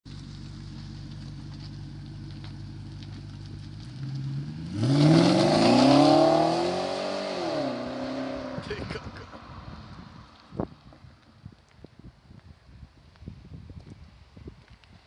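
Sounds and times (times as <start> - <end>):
car engine idling and revving: 0.1 - 11.4.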